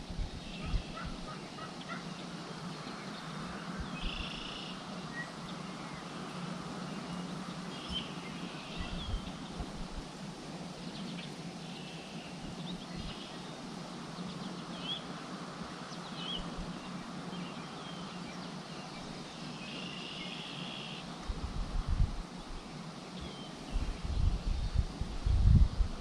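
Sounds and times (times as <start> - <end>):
wind rumbling on microphone: 0.0 - 1.4, 7.9 - 10.3, 21.2 - 26.0
steady outdoor hiss: 0.0 - 26.0
small birds chirping: 0.4 - 9.7, 10.8 - 21.1
bird buzzy trill: 3.7 - 5.6.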